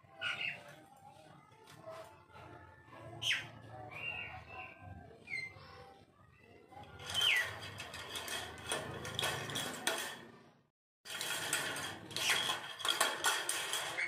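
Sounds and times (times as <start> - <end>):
bird chirp: 0.0 - 0.8, 3.2 - 7.6
beak clicking and rattling: 6.9 - 10.1, 11.1 - 14.0.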